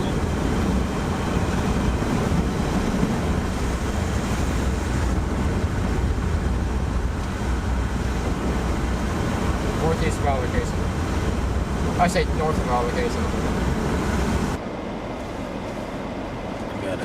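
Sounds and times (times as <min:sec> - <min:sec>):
road and wind noise in car: 0:00.0 - 0:17.0.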